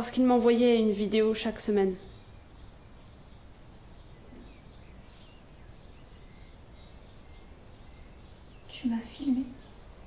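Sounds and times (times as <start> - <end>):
small bird chirping: 0.1 - 10.0.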